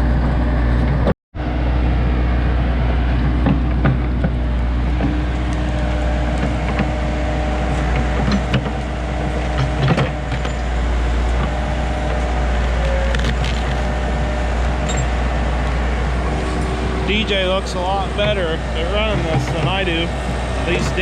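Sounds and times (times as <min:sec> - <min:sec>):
diesel engine under load: 0:00.0 - 0:21.0
wood snapping and cracking: 0:13.0 - 0:14.0.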